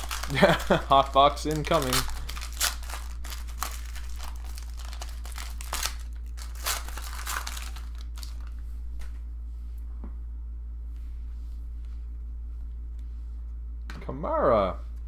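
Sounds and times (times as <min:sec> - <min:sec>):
cards rustling: 0:00.0 - 0:08.6
wrappers crinkling and tearing: 0:00.0 - 0:08.6
low electrical hum: 0:00.0 - 0:15.0.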